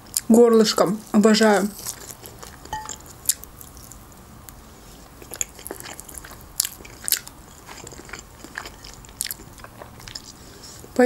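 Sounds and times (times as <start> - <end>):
chewing and biting: 5.2 - 11.0.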